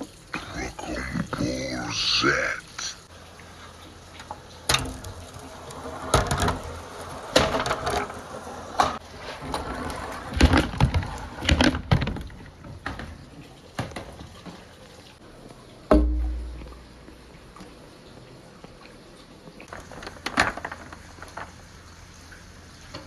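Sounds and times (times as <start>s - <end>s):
marbles rolling and clattering: 4.2s - 13.0s, 19.7s - 22.0s.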